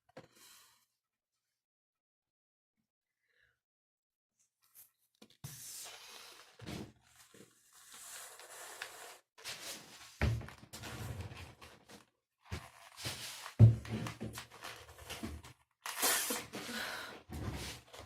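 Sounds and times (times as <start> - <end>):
balloon being inflated: 15.9 - 16.8.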